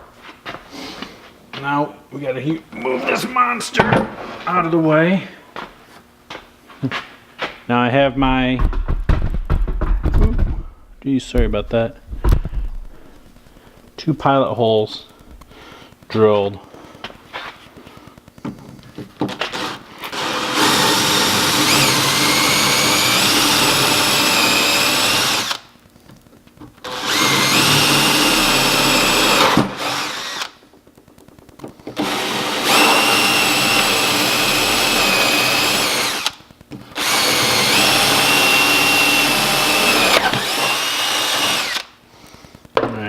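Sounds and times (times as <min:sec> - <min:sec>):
electric drill boring into wood: 0:19.3 - 0:25.7, 0:26.8 - 0:30.6, 0:32.0 - 0:36.4, 0:37.0 - 0:42.0.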